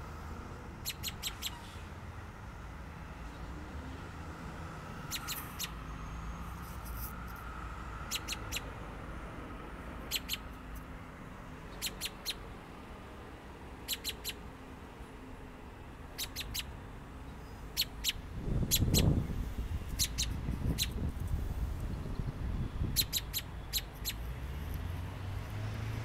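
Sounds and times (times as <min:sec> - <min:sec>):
small bird chipping: 0:00.8 - 0:01.6, 0:05.0 - 0:05.9, 0:08.0 - 0:08.8, 0:10.0 - 0:10.6, 0:11.7 - 0:12.5, 0:13.8 - 0:14.4, 0:16.1 - 0:19.2, 0:19.9 - 0:21.1, 0:21.8 - 0:24.3.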